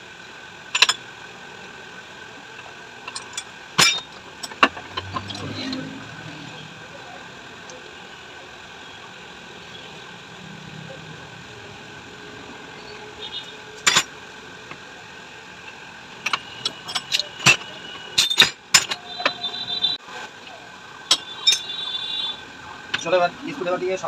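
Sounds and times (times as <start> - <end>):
steady background hum: 0.0 - 24.0
metal tools clinking: 3.0 - 5.9, 13.8 - 14.1, 16.2 - 19.4, 21.1 - 21.8.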